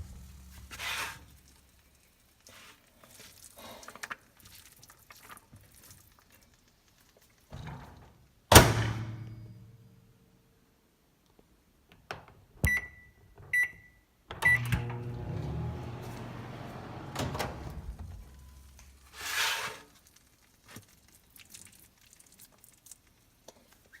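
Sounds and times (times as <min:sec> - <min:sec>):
microwave keypad beeps: 0:12.6 - 0:15.0
microwave oven humming: 0:14.4 - 0:18.9.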